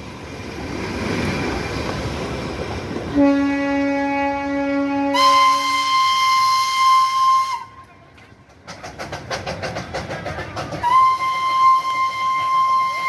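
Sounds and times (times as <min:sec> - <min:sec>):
train whistle blast: 0:03.2 - 0:07.9, 0:10.8 - 0:13.0.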